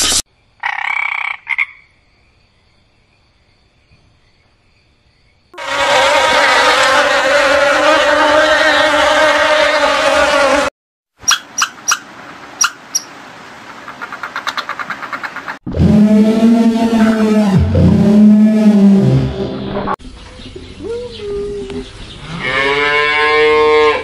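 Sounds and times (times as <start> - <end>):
honeybee buzzing: 5.6 - 10.7.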